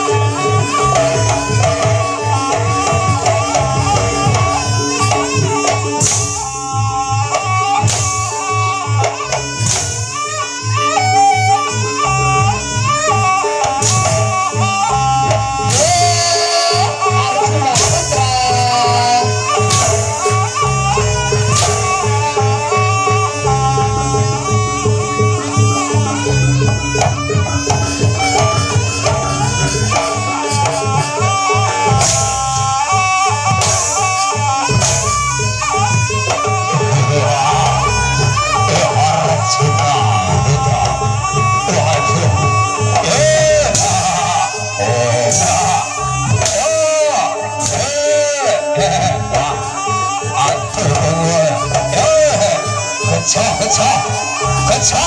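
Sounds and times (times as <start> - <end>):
hand drums: 0.0 - 55.0
reedy trumpet melody: 0.0 - 55.0
low drum beat: 23.4 - 37.8.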